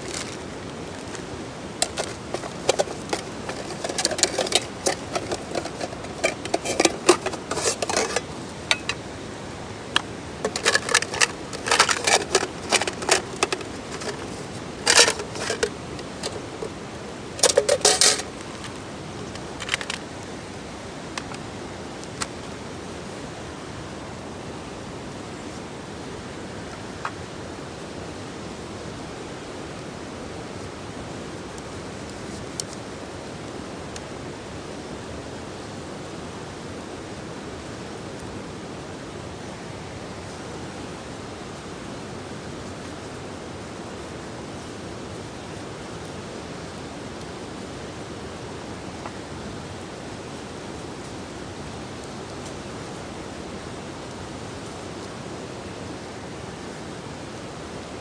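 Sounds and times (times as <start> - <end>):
steady hiss: 0.0 - 58.0
sharp clicks and clatter: 10.5 - 16.4.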